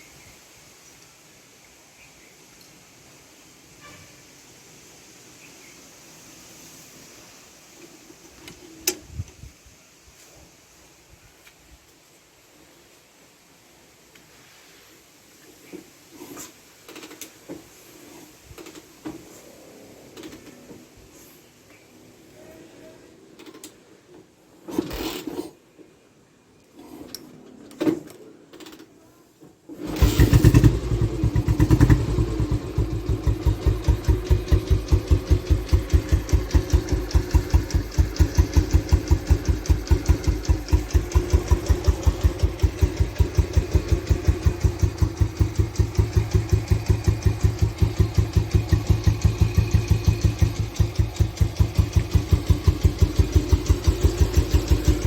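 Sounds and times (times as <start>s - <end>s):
motorcycle engine starting and idling: 18.5s - 19.4s, 20.0s - 20.9s, 24.6s - 25.6s, 29.7s - 55.0s.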